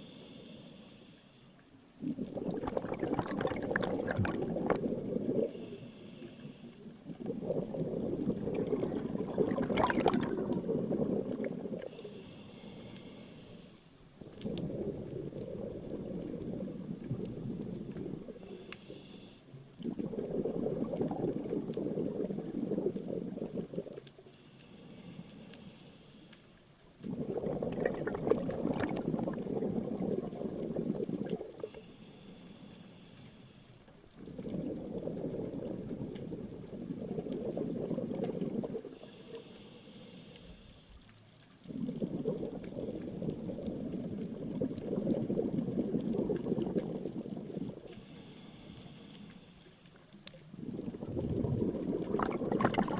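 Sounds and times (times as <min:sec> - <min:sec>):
regulator inhaling hiss: 0:00.0 - 0:01.6, 0:05.4 - 0:07.0, 0:11.7 - 0:14.0, 0:18.4 - 0:19.6, 0:24.2 - 0:26.6, 0:31.6 - 0:34.0, 0:38.9 - 0:40.9, 0:47.9 - 0:50.0
exhaled air bubbles underwater: 0:02.0 - 0:05.8, 0:06.7 - 0:12.1, 0:14.0 - 0:18.8, 0:19.6 - 0:24.2, 0:26.8 - 0:31.8, 0:34.0 - 0:39.2, 0:41.3 - 0:48.1, 0:50.0 - 0:52.9.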